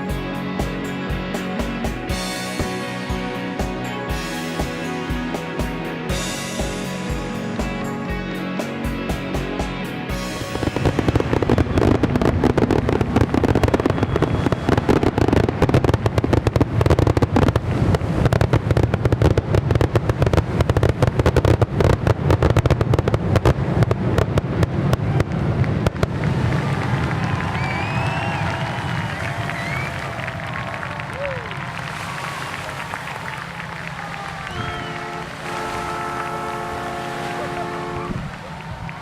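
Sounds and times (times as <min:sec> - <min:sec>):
music: 0:00.0 - 0:15.5
fireworks bangs and crackles: 0:10.1 - 0:39.0.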